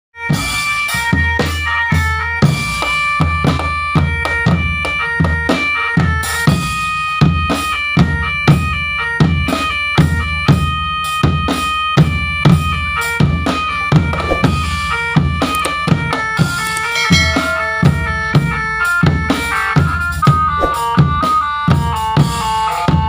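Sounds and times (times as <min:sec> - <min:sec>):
bass and snare drums: 0:00.3 - 0:23.0
reedy melody: 0:13.1 - 0:21.8.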